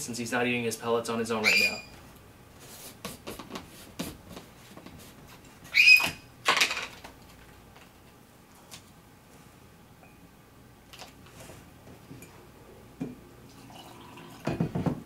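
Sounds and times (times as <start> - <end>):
parrot harsh call: 1.4 - 1.9, 5.7 - 6.2.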